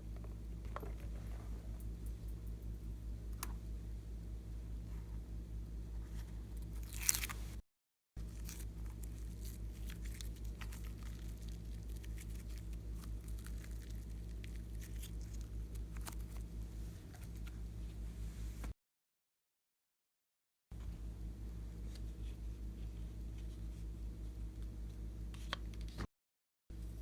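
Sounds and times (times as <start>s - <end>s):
steady low hum: 0.0s - 7.6s, 8.2s - 18.8s, 20.8s - 26.0s
slime squishing and crackling: 6.6s - 7.6s, 8.2s - 16.5s.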